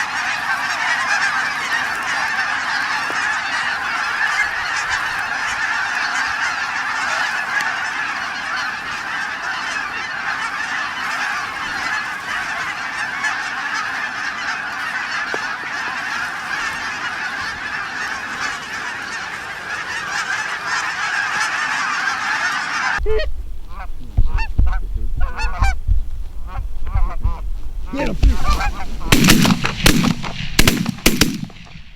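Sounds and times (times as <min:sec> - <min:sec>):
flock of geese honking: 0:00.0 - 0:31.9
wind buffeting microphone: 0:23.0 - 0:31.9.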